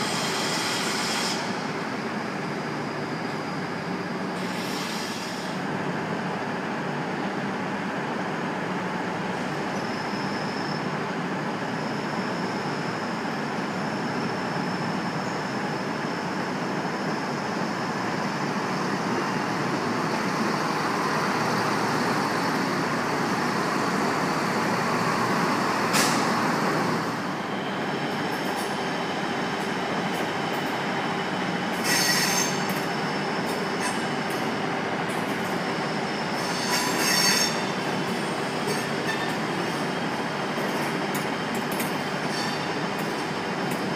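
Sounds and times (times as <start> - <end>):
train wheel squeal: 0.0 - 1.8, 2.6 - 5.6, 9.4 - 13.3, 30.4 - 43.8.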